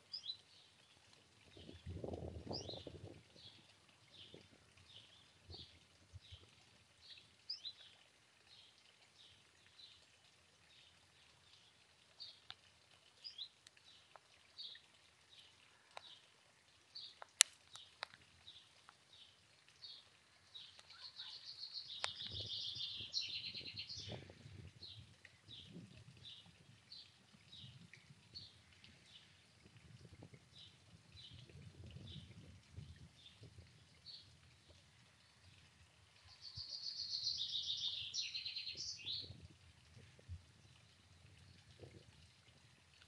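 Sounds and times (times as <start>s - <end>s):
rapid trilling birdsong: 20.6s - 25.0s, 36.3s - 39.3s.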